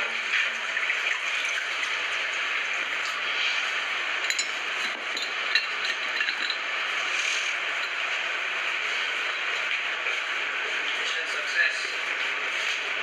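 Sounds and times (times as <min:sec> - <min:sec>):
hard objects clinking and scraping: 0:04.3 - 0:06.7.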